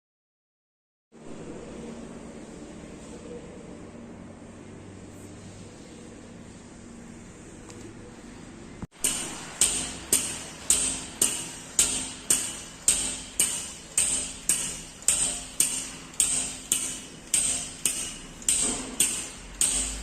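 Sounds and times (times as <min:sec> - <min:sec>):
hammer blows on metal: 0:09.0 - 0:20.0.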